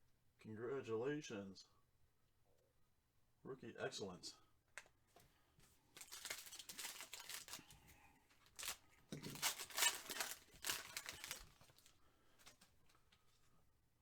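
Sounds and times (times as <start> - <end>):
rustling of handled cards: 4.8 - 13.5
card wrapper tearing and crinkling: 5.9 - 12.7.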